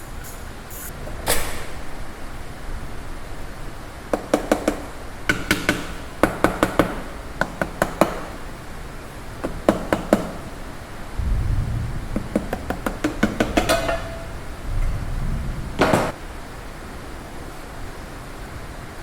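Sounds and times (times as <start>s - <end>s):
low rumble: 11.2s - 12.6s, 14.1s - 15.8s.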